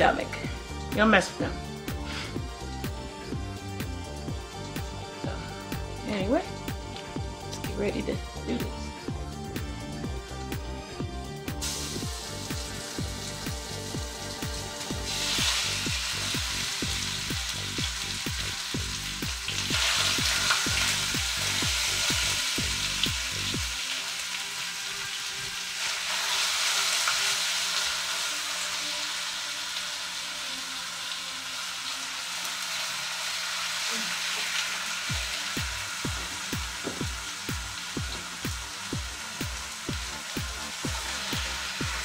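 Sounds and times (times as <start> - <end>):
chicken sizzling in hot oil: 11.5 - 42.0.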